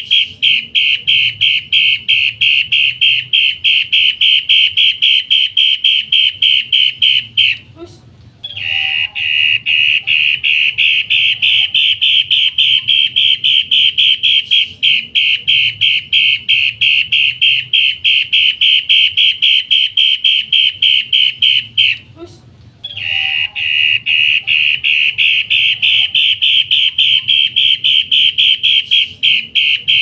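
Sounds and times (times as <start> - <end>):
bird calling harsh short notes: 22.9 - 30.0.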